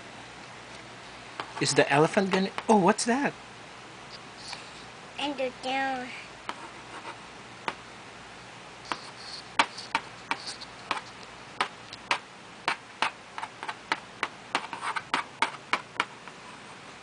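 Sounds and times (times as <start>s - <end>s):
pen tapping on paper: 8.9s - 11.0s, 11.6s - 16.1s.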